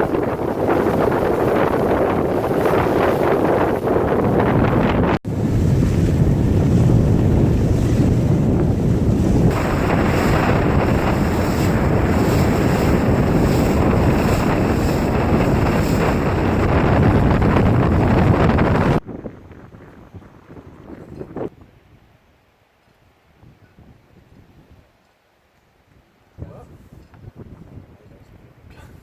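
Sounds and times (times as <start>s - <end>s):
water rushing past boat: 0.0s - 21.5s
wind buffeting microphone: 0.0s - 22.2s, 23.3s - 25.0s, 25.9s - 29.0s.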